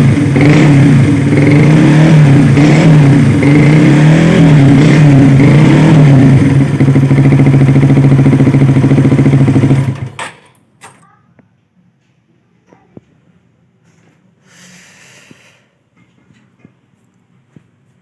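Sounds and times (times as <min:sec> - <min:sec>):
motorcycle engine revving and idling: 0:00.0 - 0:10.2.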